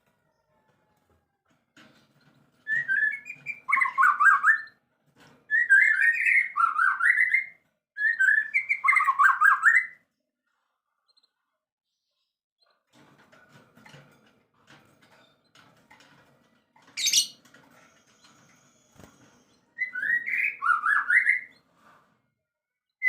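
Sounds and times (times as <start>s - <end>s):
songbird whistling: 19.8s - 21.5s.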